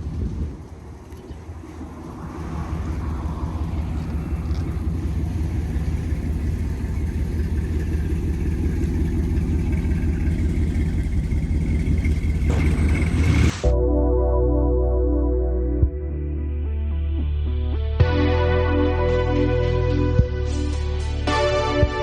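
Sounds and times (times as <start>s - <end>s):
pickup truck engine rumble: 0.0s - 13.7s.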